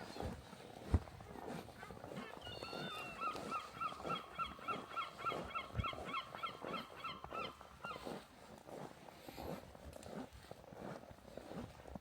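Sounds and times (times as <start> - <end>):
footsteps crunching through snow: 0.0 - 12.0
high chirping calls: 2.4 - 8.0.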